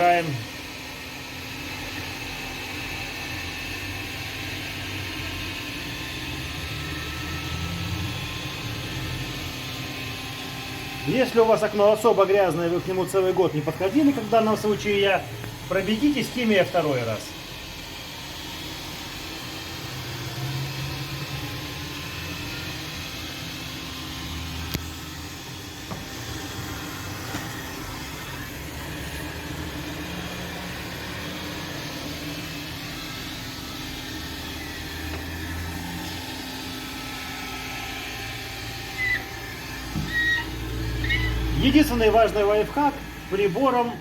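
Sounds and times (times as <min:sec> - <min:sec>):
window vacuum humming: 0:00.0 - 0:44.0
vacuum sucking water: 0:24.2 - 0:44.0.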